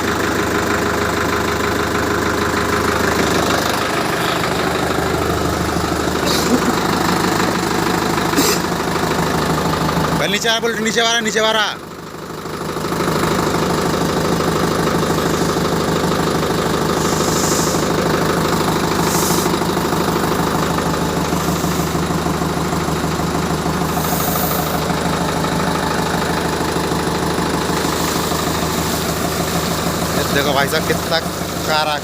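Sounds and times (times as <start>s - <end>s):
diesel tractor engine idling: 0.0s - 32.0s
short hisses: 16.9s - 18.0s, 19.0s - 19.6s, 21.2s - 22.0s, 23.9s - 24.8s.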